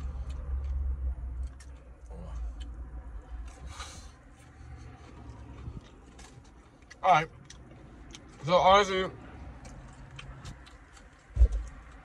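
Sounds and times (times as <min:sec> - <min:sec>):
person chewing food: 0:00.0 - 0:08.4, 0:09.2 - 0:12.0
steady low rumble: 0:00.0 - 0:08.4.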